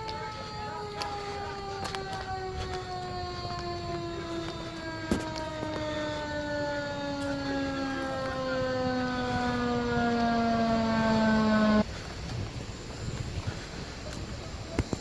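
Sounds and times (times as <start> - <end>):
emergency vehicle siren wailing: 0.0 - 11.9.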